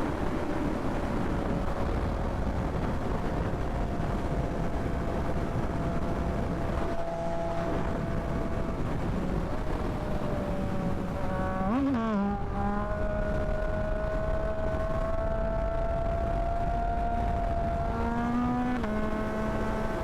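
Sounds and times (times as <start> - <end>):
wind noise: 0.0 - 20.0.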